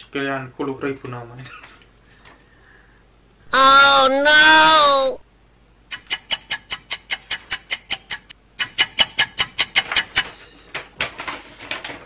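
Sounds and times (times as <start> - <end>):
clock-like ticking: 5.9 - 10.3
paper rustling: 9.9 - 12.0.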